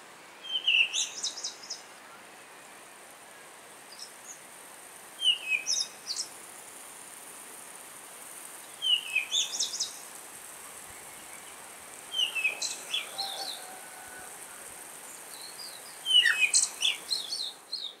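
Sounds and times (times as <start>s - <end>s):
faint high hiss: 0.0s - 18.0s
bird singing falling chirps: 8.7s - 10.0s, 11.0s - 13.7s, 15.2s - 18.0s.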